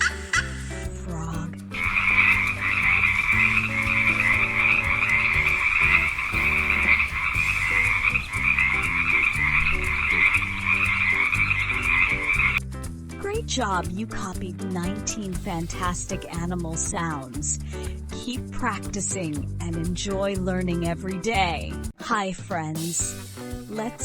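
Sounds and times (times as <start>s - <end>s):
frog chorus trilling: 0.0s - 0.7s
simple background melody: 0.0s - 12.6s, 13.2s - 21.7s.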